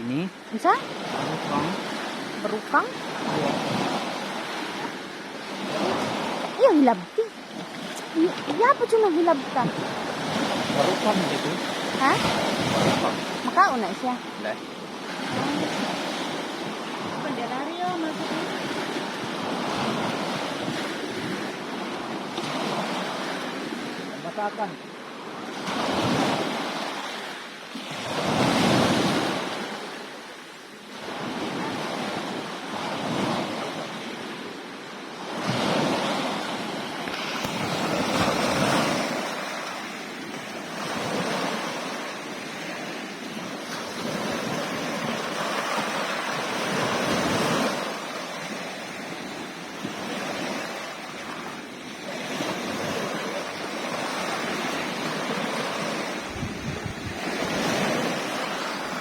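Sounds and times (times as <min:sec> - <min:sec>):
sea waves surging: 0:00.0 - 0:59.0
wind buffeting microphone: 0:52.6 - 0:59.0.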